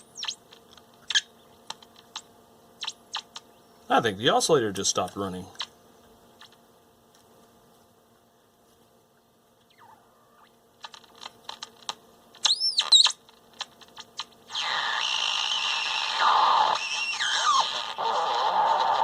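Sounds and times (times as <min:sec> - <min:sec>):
crackles and clicks: 0:00.0 - 0:03.5, 0:09.6 - 0:19.0
faint radio hum: 0:00.0 - 0:19.0.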